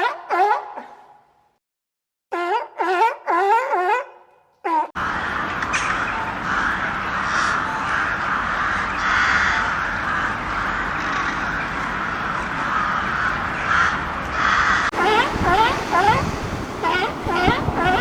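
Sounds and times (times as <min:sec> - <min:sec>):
crows cawing: 0:05.0 - 0:18.0.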